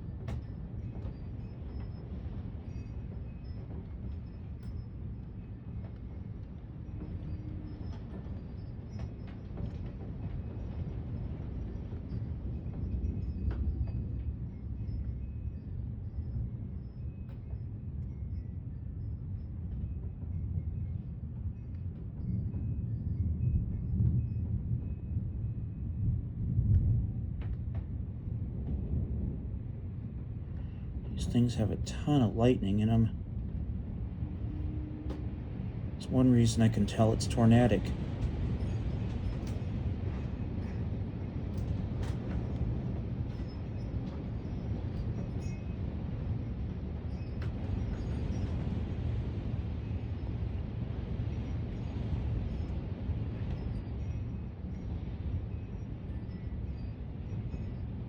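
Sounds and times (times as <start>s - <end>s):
wind buffeting microphone: 17.5s - 58.0s.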